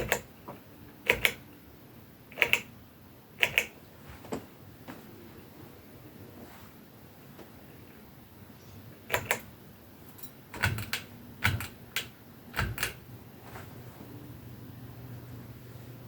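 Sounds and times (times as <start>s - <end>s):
sharp clicks: 0.0s - 0.3s, 1.1s - 1.4s, 2.4s - 2.7s, 3.4s - 3.8s, 9.1s - 9.5s
ceiling fan motor hum: 0.0s - 16.0s.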